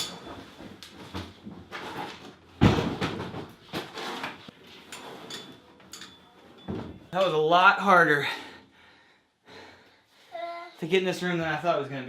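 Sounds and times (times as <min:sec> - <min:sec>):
knocks and scrapes of handling: 0:00.0 - 0:07.1.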